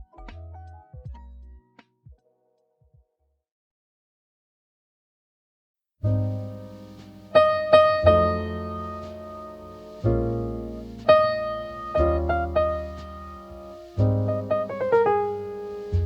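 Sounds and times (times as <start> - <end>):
slow jazz piano chords: 6.0 - 16.0.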